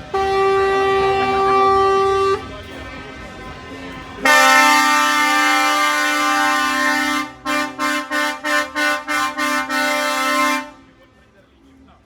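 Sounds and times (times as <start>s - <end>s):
truck air horn blasting and tooting: 0.0s - 2.8s, 4.2s - 10.9s.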